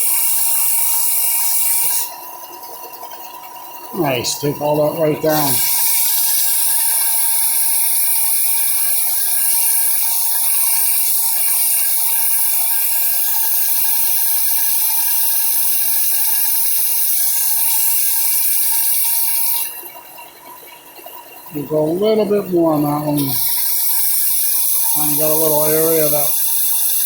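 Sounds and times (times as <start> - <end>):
wood sanding hiss: 21.6 - 27.0.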